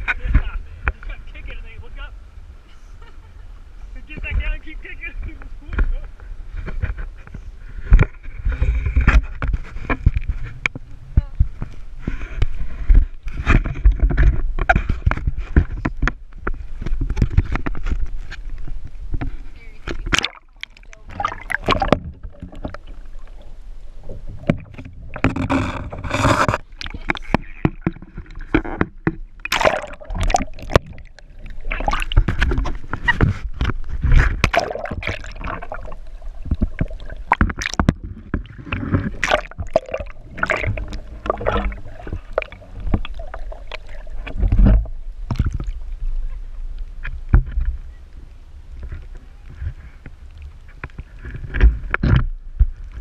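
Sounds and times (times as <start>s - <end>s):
steady low rumble: 0.0s - 51.2s
paddle splashing in water: 11.4s - 46.0s.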